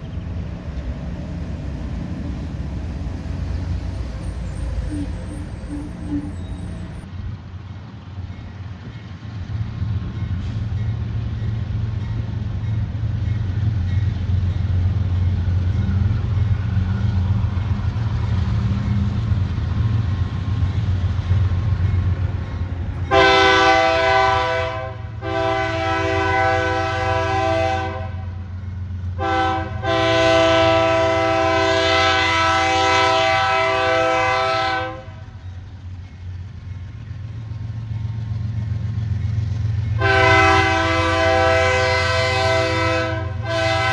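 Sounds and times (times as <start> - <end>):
diesel locomotive rumbling: 0.0 - 43.9
train air horn blasts: 4.3 - 7.0, 23.1 - 28.4, 29.2 - 35.3, 40.0 - 43.9.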